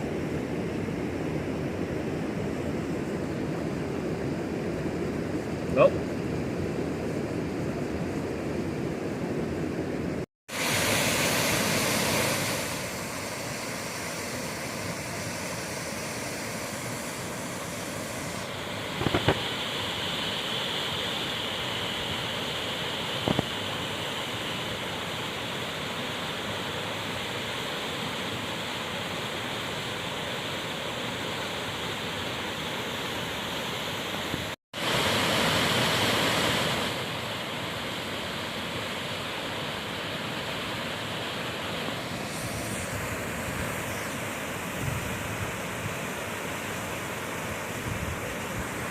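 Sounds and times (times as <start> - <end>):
flowing creek water: 10.5 - 48.9.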